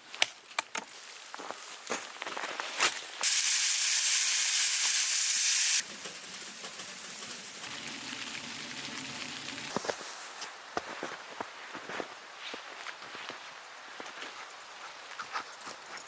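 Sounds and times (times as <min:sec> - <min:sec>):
loud sizzling hiss: 0:03.2 - 0:10.7.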